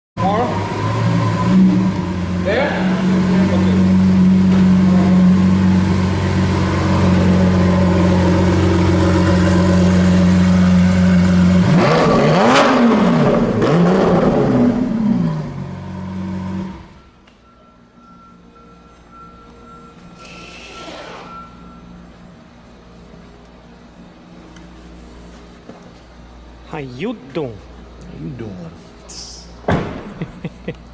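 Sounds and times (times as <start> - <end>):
car engine revving: 0.2 - 17.0
car engine idling: 0.2 - 17.2.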